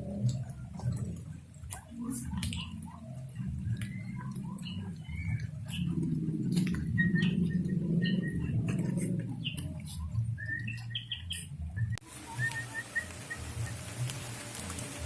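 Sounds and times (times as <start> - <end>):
low rumble: 0.0 - 12.4
small bird chirping: 2.4 - 14.0.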